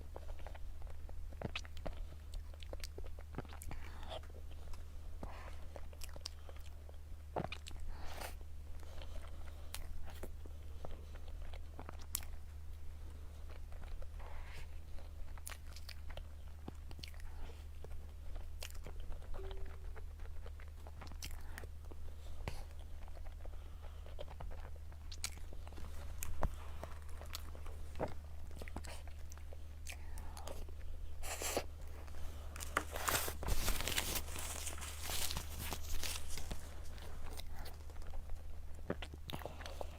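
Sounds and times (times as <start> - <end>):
low steady hum: 0.0 - 39.9
person chewing food: 0.0 - 39.9
crackling: 31.8 - 39.2.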